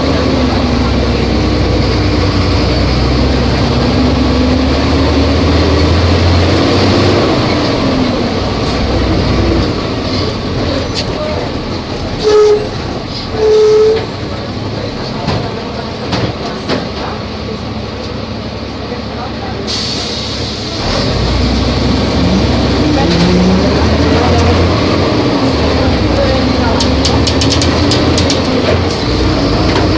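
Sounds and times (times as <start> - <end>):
bus diesel engine under load: 0.0 - 29.9
loud horn blasts: 12.2 - 14.1.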